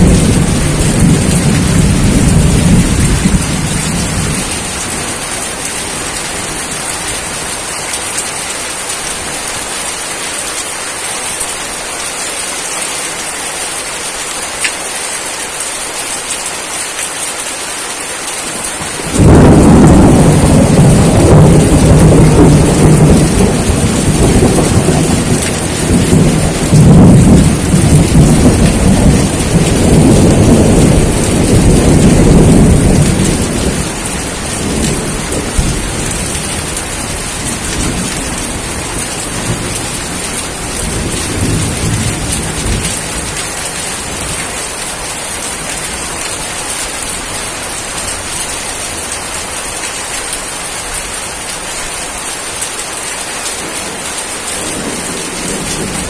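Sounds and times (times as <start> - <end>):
rolling thunder: 0.0 - 5.3, 18.8 - 44.5
heavy rain: 0.0 - 56.0.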